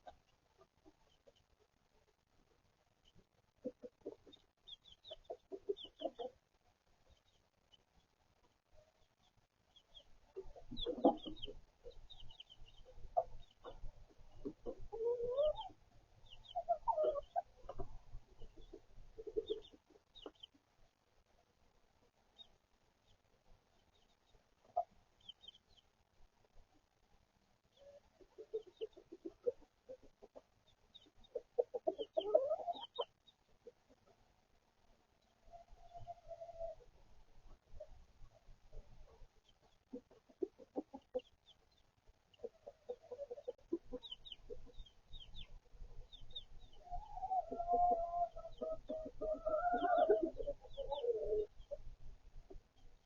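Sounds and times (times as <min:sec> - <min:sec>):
chicks peeping: 0:00.0 - 0:21.0, 0:22.1 - 0:26.8, 0:27.7 - 0:34.2, 0:35.2 - 0:53.0
chickens clucking: 0:00.0 - 0:53.0
chicken squawk: 0:14.6 - 0:19.8, 0:31.3 - 0:33.1, 0:46.6 - 0:51.8.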